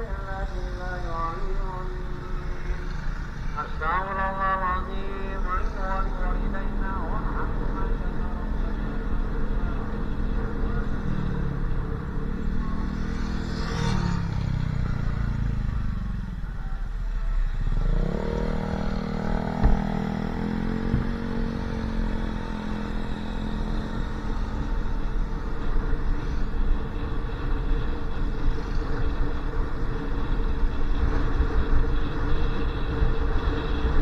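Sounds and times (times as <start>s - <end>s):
motorcycle engine running: 0.0s - 34.0s
road and wind noise: 0.0s - 34.0s
sharp knock: 19.5s - 20.0s.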